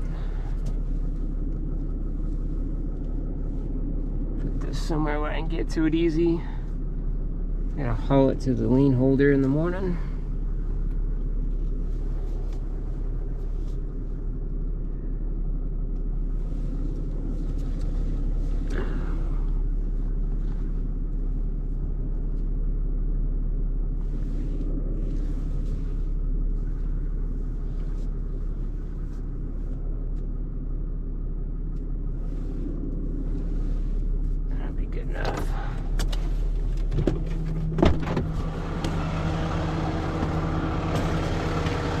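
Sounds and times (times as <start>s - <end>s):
truck engine rumbling: 0.0s - 42.0s
falling whine: 37.2s - 42.0s.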